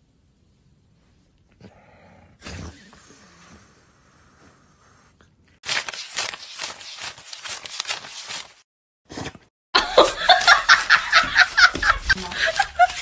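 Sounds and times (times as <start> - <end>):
scuffling and tapping: 10.3 - 13.0.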